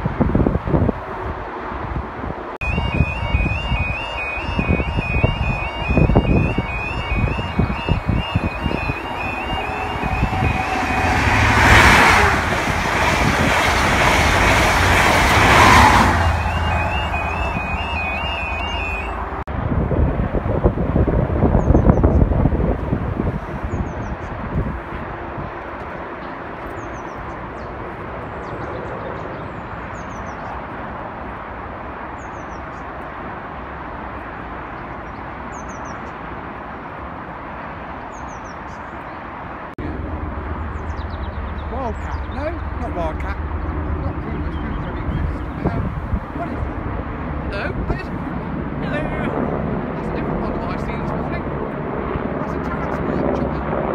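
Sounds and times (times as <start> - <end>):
train rushing and rumbling: 0.0 - 26.8, 39.8 - 51.8
two-tone crossing alarm: 2.6 - 12.4, 15.4 - 19.4.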